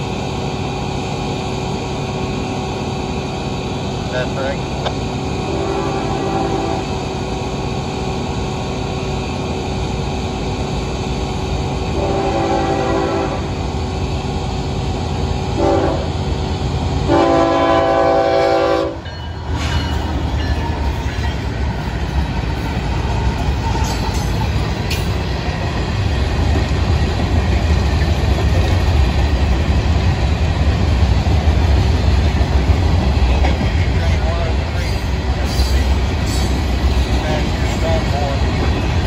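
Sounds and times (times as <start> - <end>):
locomotive horn: 5.5 - 6.9, 12.0 - 13.5, 15.6 - 16.1, 17.1 - 19.0.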